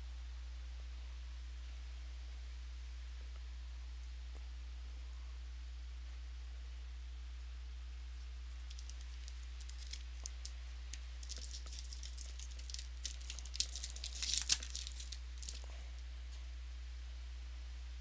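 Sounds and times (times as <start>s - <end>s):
low electrical hum: 0.0s - 18.0s
foil wrapper crinkling and tearing: 8.5s - 15.8s.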